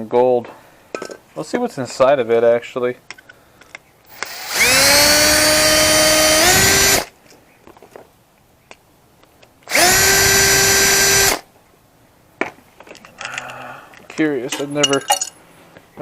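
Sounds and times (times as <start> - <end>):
power drill spinning: 4.1 - 7.1, 9.7 - 11.4.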